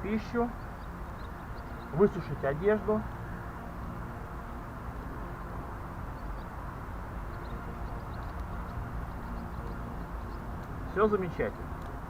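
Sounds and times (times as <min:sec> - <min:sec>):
faint hum: 0:00.0 - 0:12.0
low outdoor rumble: 0:00.0 - 0:12.0.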